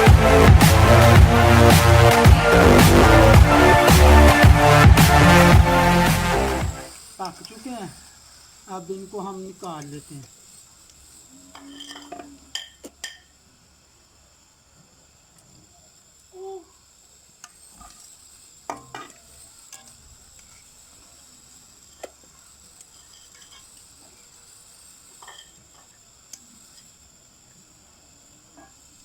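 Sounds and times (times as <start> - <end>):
food sizzling in oil: 6.8 - 29.0.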